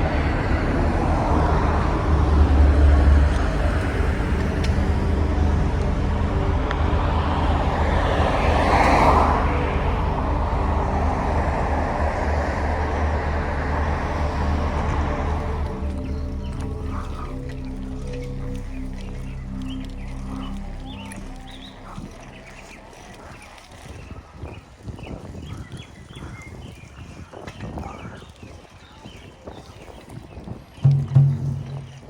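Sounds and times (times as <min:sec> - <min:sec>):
vehicle passing: 0:00.0 - 0:24.6, 0:30.8 - 0:32.0
road traffic noise: 0:00.0 - 0:26.4, 0:30.8 - 0:32.0
wind rumble on microphone: 0:00.0 - 0:32.0.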